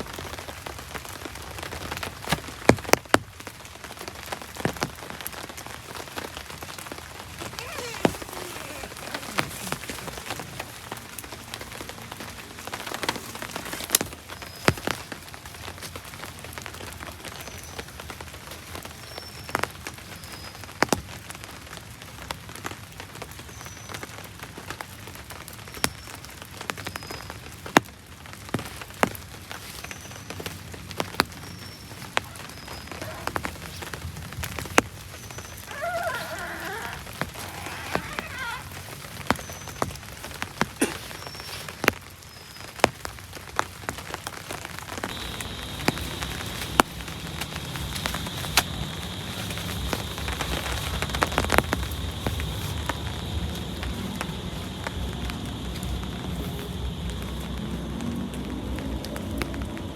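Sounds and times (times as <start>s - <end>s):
heavy rain: 0.0s - 59.9s
small creature chirping: 35.7s - 38.7s.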